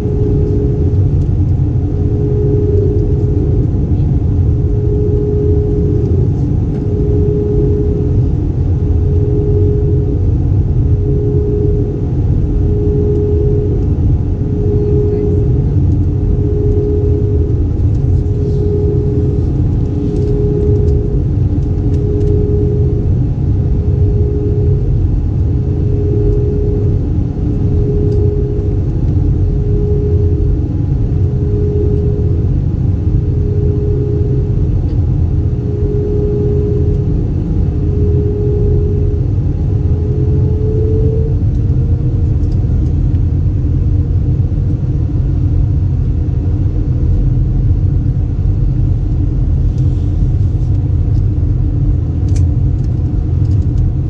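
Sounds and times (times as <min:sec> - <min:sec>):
pulsing tone: 0:00.0 - 0:41.5
airplane cabin rumble: 0:00.0 - 0:54.0.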